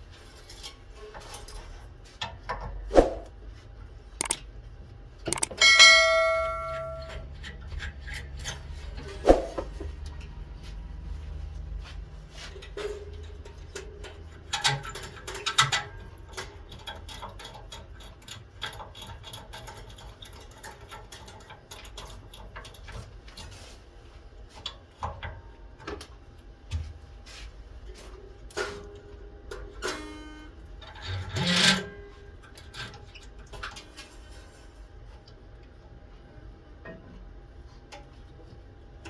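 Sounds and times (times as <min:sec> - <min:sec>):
low steady hum: 0:02.9 - 0:11.2.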